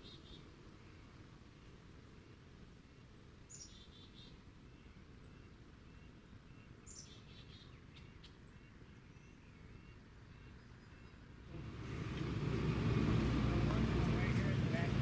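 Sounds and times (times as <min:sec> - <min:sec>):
birds chirping: 0:00.0 - 0:15.0
low outdoor rumble: 0:10.4 - 0:15.0
engine humming: 0:11.4 - 0:15.0.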